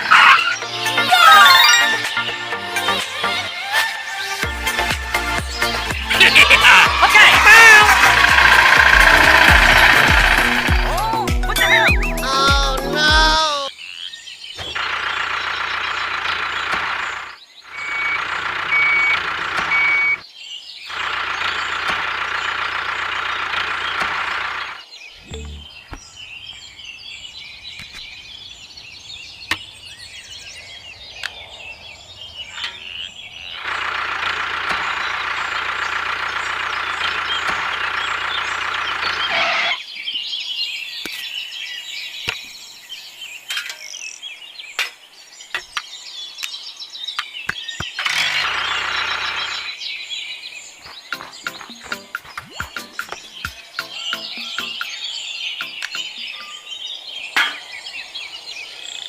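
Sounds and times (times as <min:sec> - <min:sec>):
birds chirping: 0:00.0 - 0:59.0
outdoor background noise: 0:00.0 - 0:59.0.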